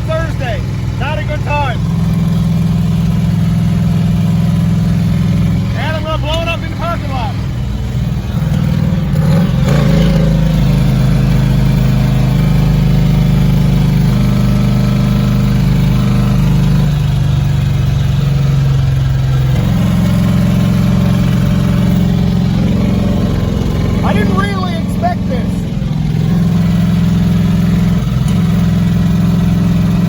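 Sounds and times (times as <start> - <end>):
engine revving at high revs: 8.2 - 30.0.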